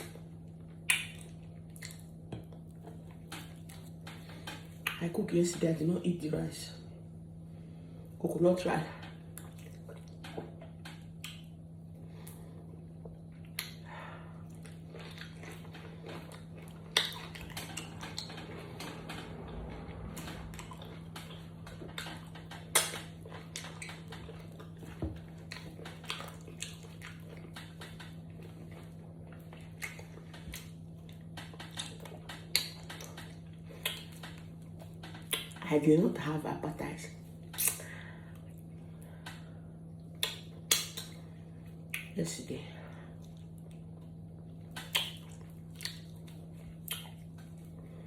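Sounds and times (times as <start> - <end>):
person chewing: 0.0 - 5.0, 9.3 - 18.6, 20.5 - 35.6, 43.2 - 48.0
low hum: 0.0 - 48.0.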